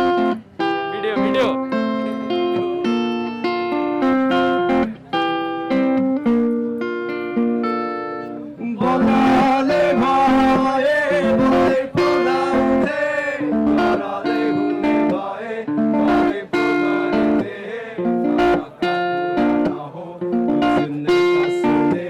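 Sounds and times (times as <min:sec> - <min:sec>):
guitar playing: 0:00.0 - 0:22.0
person singing: 0:08.3 - 0:22.0.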